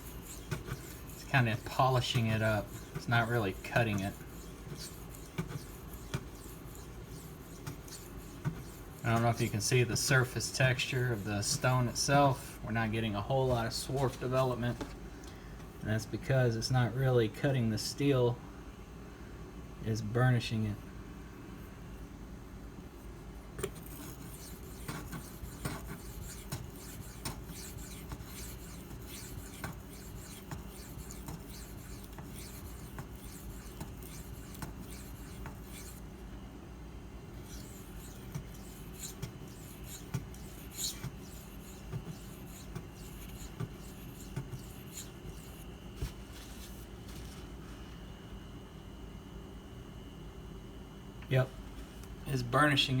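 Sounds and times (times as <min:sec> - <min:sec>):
knife rubbing on whetstone: 0:00.0 - 0:11.8, 0:23.6 - 0:36.1, 0:37.4 - 0:47.3.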